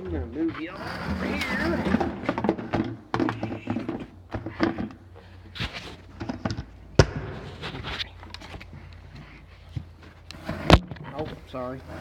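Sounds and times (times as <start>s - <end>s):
sharp loud thump: 7.0s - 7.4s.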